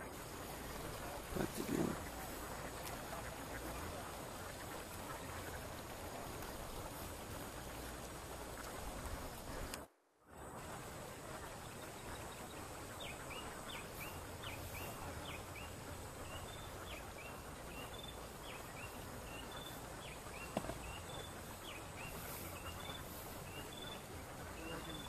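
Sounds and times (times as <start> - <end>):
steady outdoor hiss: 0.0 - 25.0
bird chirping: 11.3 - 25.0.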